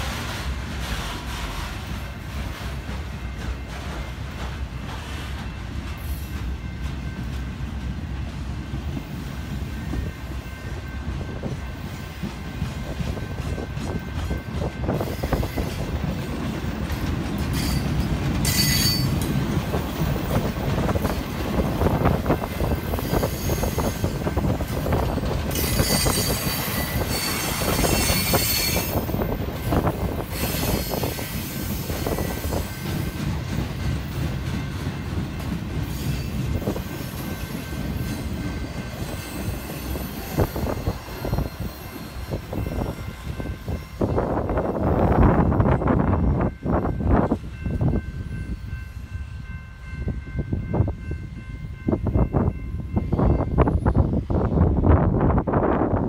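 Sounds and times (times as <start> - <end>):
train wheels rumbling and clattering: 0.0 - 56.0
high-pitched wheel squeal: 18.5 - 19.1, 25.5 - 29.0.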